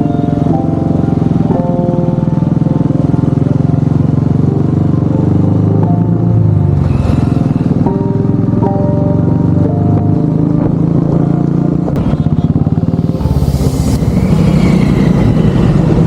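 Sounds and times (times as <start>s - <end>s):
motorcycle engine running: 0.0s - 16.0s
rush of noise: 12.0s - 16.0s.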